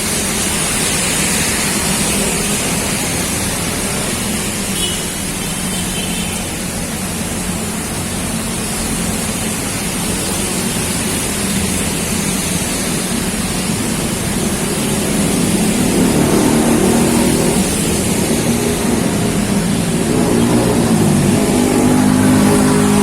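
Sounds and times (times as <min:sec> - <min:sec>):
heavy rain pouring: 0:00.0 - 0:23.0
vehicle engine passing: 0:12.1 - 0:23.0.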